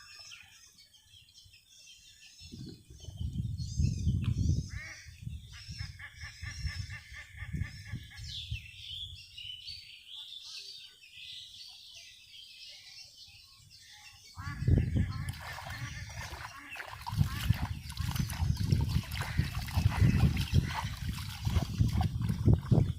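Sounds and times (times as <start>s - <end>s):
birds chirping: 0.0s - 22.9s
chickens calling: 14.4s - 21.8s.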